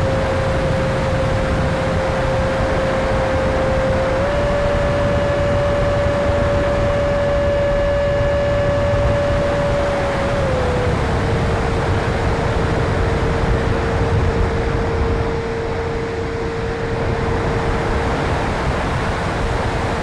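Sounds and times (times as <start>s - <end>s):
electric fan whine: 0.0s - 20.0s
low rumbling noise: 0.0s - 20.0s.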